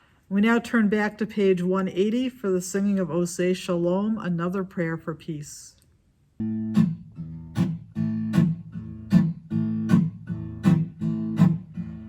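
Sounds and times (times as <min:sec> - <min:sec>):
acoustic guitar strumming chords: 0:06.4 - 0:12.0.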